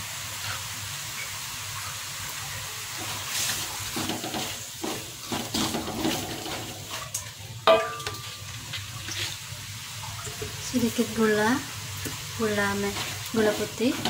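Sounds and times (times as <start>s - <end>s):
food sizzling in a wok: 0.0s - 14.0s
spatula scraping a pan: 3.0s - 7.2s, 12.6s - 14.0s.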